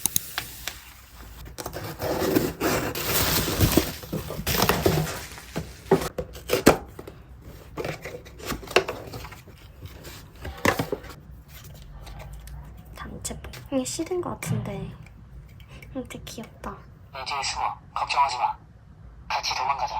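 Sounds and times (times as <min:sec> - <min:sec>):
packaging rustling and scraping: 0:00.6 - 0:12.9.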